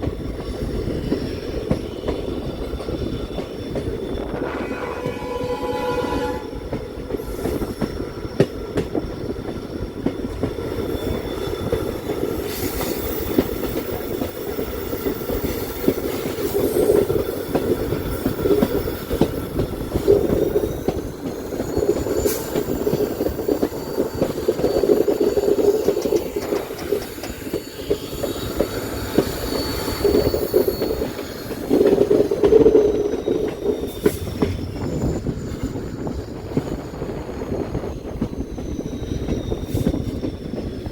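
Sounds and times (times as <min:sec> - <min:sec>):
train wheels rumbling on rails: 0:00.0 - 0:40.9
high thin wheel squeal: 0:03.3 - 0:08.2, 0:20.1 - 0:40.8.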